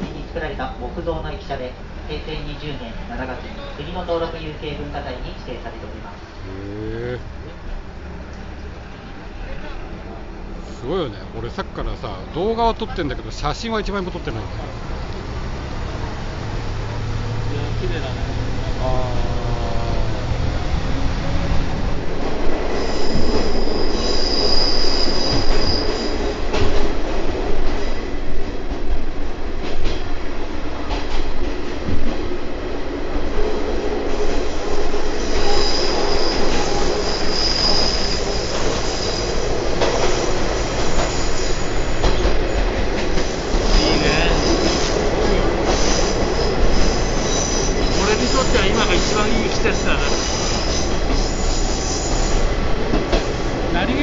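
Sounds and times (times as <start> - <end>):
train rumbling along track: 0.0 - 54.0
train wheels squealing: 22.7 - 26.8, 34.1 - 53.9.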